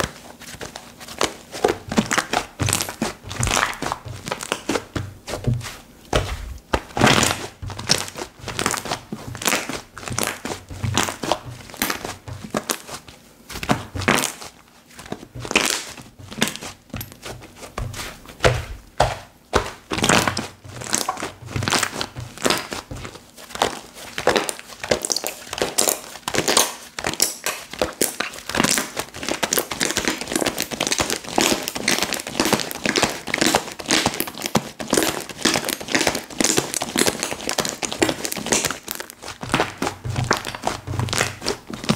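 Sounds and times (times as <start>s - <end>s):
slime squishing with clicks and pops: 2.0s - 4.9s, 9.4s - 12.9s, 23.6s - 41.9s.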